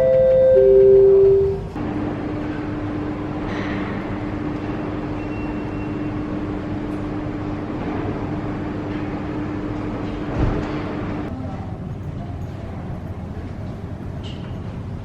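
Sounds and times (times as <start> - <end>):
machinery hum: 0.0 - 12.0.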